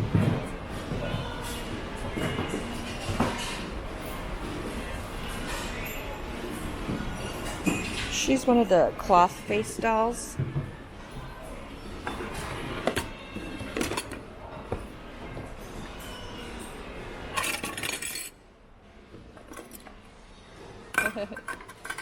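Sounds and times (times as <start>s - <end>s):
glass items clinking and knocking: 7.2s - 8.1s.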